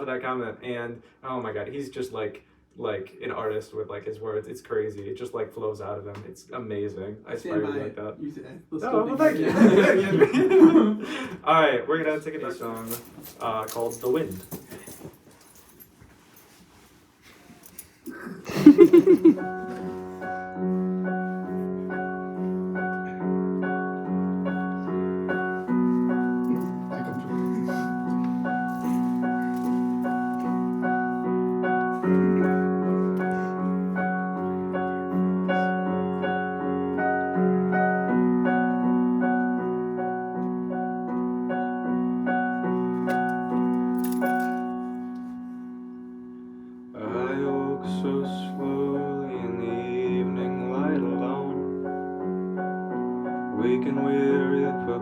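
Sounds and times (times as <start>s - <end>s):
piano playing repeated chords: 18.9s - 55.0s.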